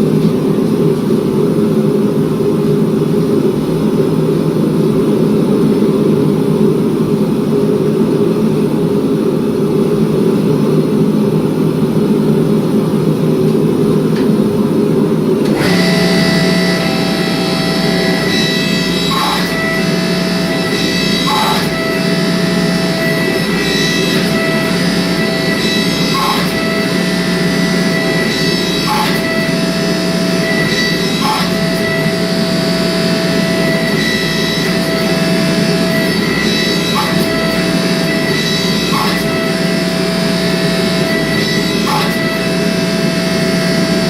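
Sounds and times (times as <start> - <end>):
shop machinery roar: 0.0 - 44.0
whining motor: 15.4 - 44.0.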